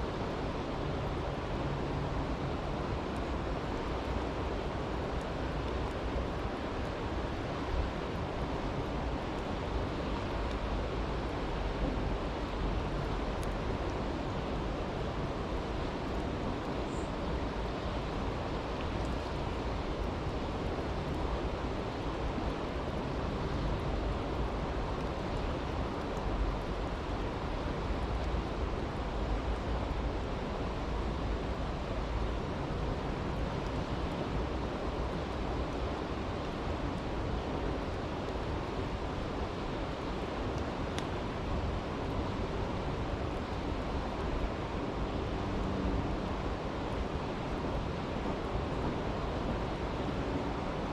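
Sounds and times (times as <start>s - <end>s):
stream rushing: 0.0s - 50.9s
campfire crackling: 32.6s - 49.6s.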